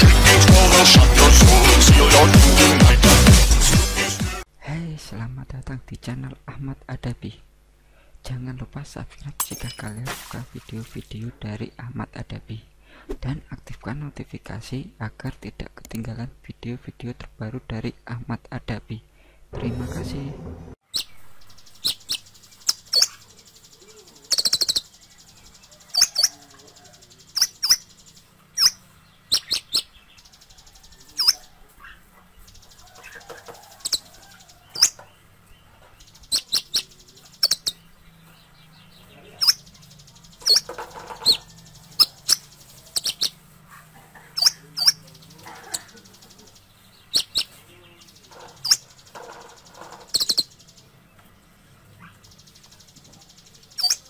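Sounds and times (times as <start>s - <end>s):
small bird high chirps: 20.9s - 54.0s.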